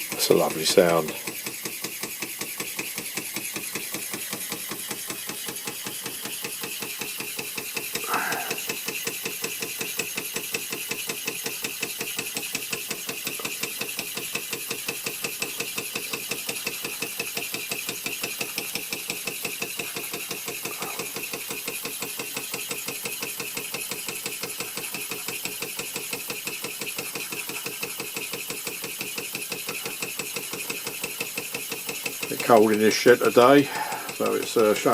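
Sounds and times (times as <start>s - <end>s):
toy steam engine chuffing: 0.0s - 34.9s.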